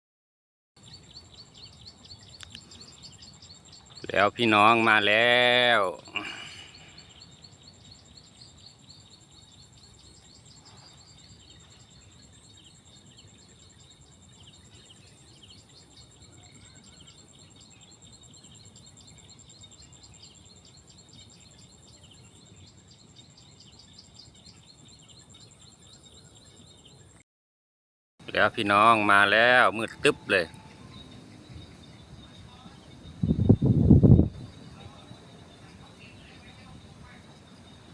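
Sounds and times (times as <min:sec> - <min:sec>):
low background hiss: 0:00.8 - 0:27.0
high-pitched insect trill: 0:00.8 - 0:27.1
rapid insect chirps: 0:00.8 - 0:27.2, 0:28.3 - 0:37.9.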